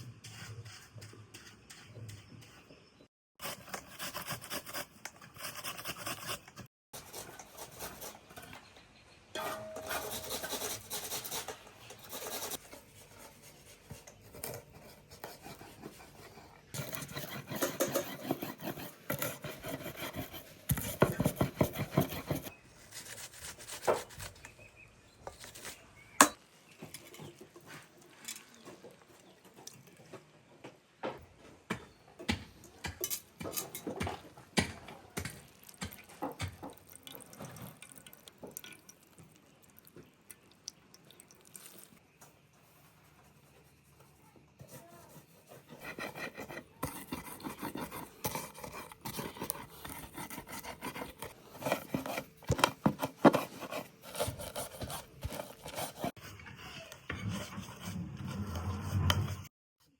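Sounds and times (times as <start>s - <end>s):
dishes clinking: 9.4s - 10.2s.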